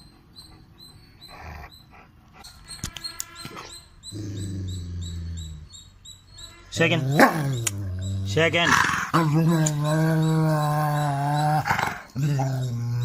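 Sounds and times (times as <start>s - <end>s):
dog growling: 4.1s - 5.8s, 6.9s - 13.0s.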